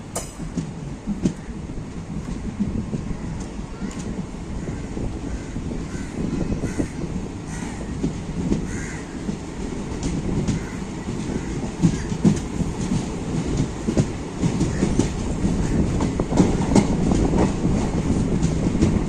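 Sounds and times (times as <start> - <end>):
train knocks: 0.0 - 19.0
train rumble: 0.0 - 19.0
crow cawing: 8.7 - 9.1.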